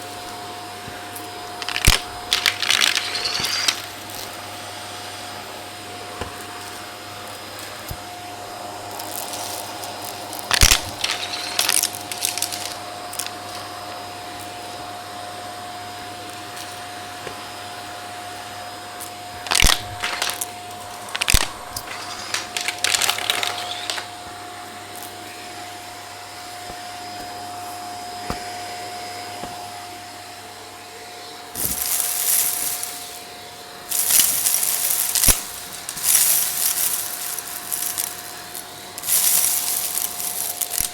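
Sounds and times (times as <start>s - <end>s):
debris rattling in vacuum: 0.0s - 4.5s, 8.3s - 13.8s, 19.0s - 24.2s, 31.5s - 40.9s
vacuum cleaner humming: 0.0s - 40.9s.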